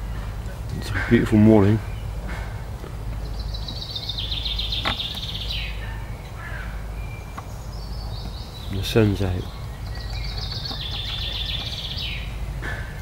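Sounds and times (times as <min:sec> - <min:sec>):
low steady rumble: 0:00.0 - 0:13.0
songbird trilling and chirping: 0:00.0 - 0:13.0.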